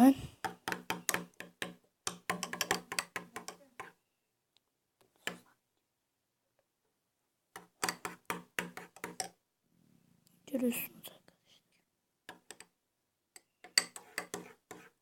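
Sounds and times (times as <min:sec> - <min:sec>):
utensil stirring slime: 0:00.4 - 0:04.0, 0:07.6 - 0:09.4, 0:13.4 - 0:15.0.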